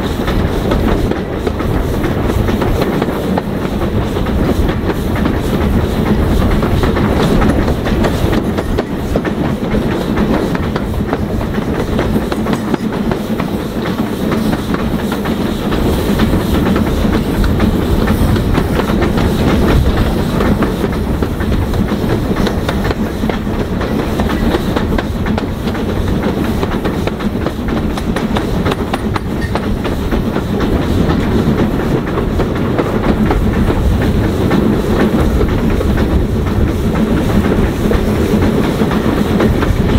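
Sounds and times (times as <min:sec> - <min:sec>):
train carriages running on track: 0:00.0 - 0:39.9
wheels clicking over rail joints: 0:15.8 - 0:39.9.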